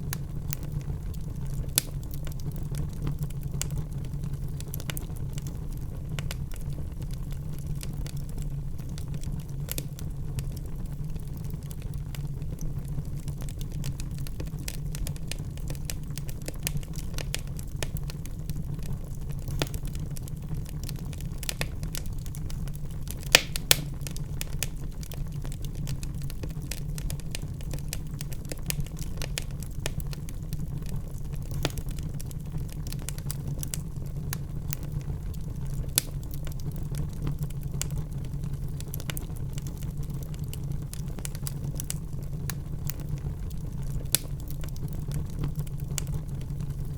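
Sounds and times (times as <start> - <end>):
fire popping: 0.0 - 46.9
wood fire crackling: 0.0 - 46.9.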